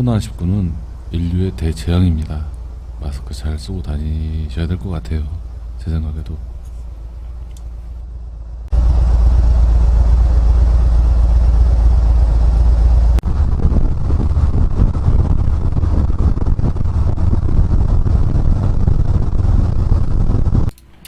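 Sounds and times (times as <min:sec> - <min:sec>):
motorcycle engine rumble: 0:00.0 - 0:20.7
wind noise on microphone: 0:13.1 - 0:20.7.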